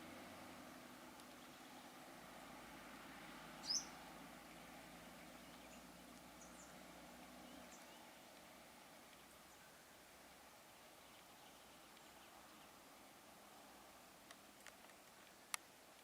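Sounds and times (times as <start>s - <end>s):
faint low hum: 0.0s - 16.0s
bird chirping: 3.6s - 8.3s, 9.1s - 10.0s, 10.9s - 12.8s.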